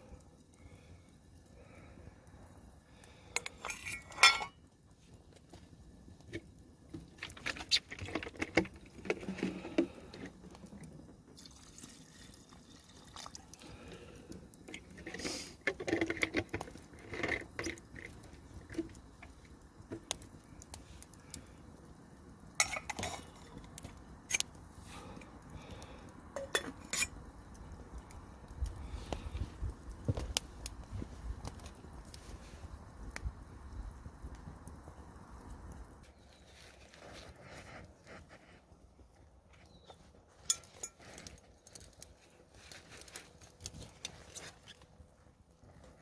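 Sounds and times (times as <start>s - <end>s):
cookware clinking and clattering: 3.5s - 4.6s, 22.6s - 23.2s.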